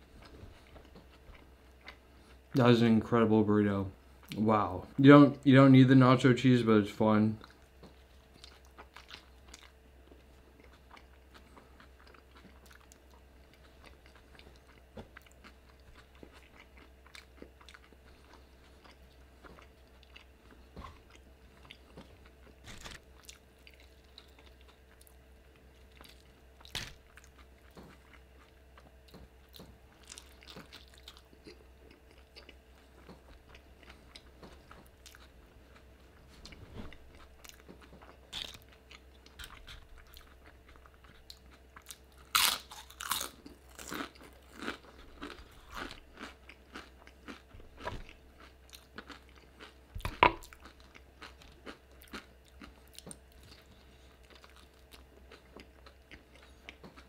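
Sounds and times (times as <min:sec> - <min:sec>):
man chewing food: 0:00.0 - 0:02.6, 0:07.4 - 0:57.0
crunchy bites: 0:22.4 - 0:23.4, 0:26.0 - 0:28.0, 0:41.8 - 0:53.2.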